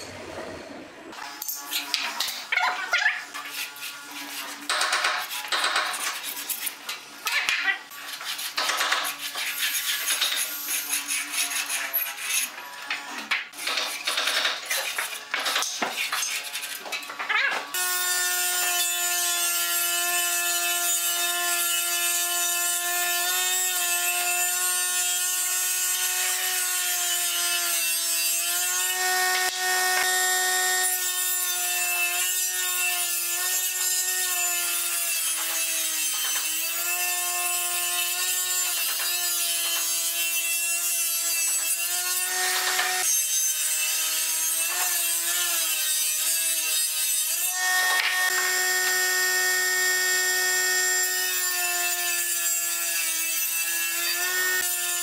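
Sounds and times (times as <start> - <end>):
table saw whining: 28.1 - 32.2, 41.3 - 55.0.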